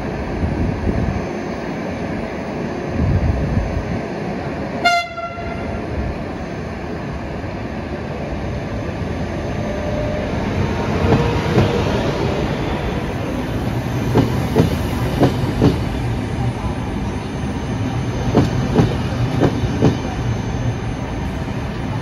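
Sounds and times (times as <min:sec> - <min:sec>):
electric train passing: 0:00.0 - 0:22.0
high train horn toot: 0:04.8 - 0:05.8.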